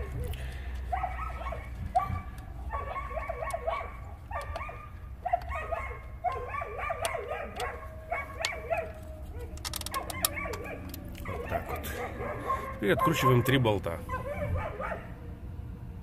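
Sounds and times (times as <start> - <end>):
dog whining and yipping: 0.0 - 15.1
sharp clicks: 8.4 - 11.8.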